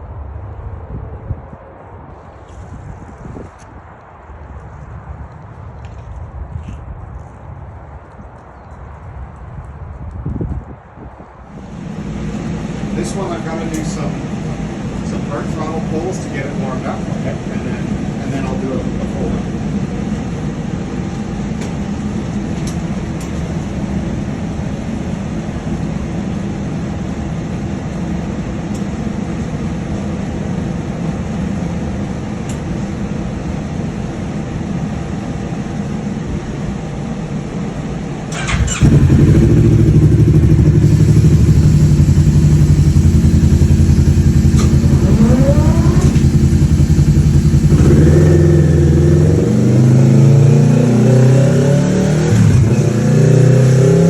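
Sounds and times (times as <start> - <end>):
motorcycle engine revving: 38.4 - 54.0.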